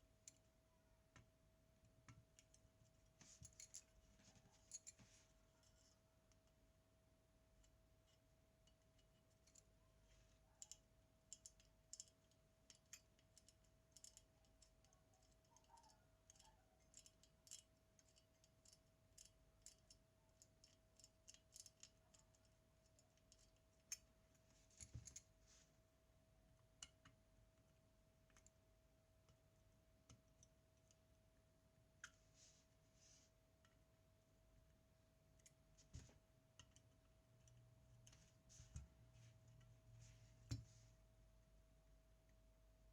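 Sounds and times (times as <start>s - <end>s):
small tools clicking and tapping: 10.5s - 25.3s, 35.4s - 39.7s.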